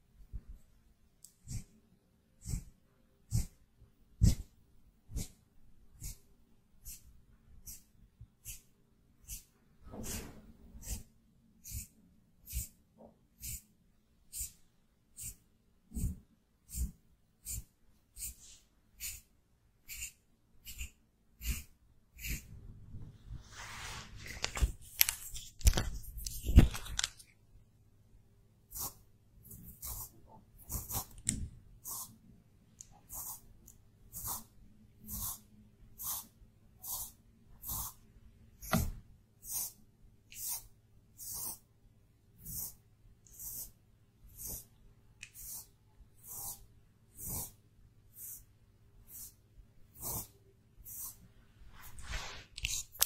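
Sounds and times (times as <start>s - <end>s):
makeup brush strokes: 19.9s - 27.1s, 50.9s - 53.0s
scratchy rustling: 23.3s - 27.3s.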